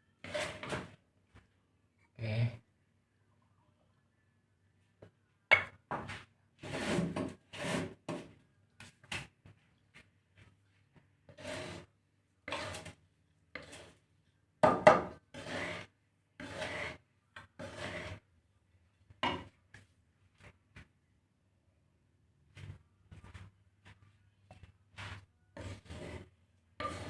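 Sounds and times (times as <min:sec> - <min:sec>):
grains scraped around a pan: 0:00.2 - 0:00.9, 0:06.6 - 0:08.1, 0:11.3 - 0:14.1, 0:15.2 - 0:18.3, 0:24.9 - 0:27.0.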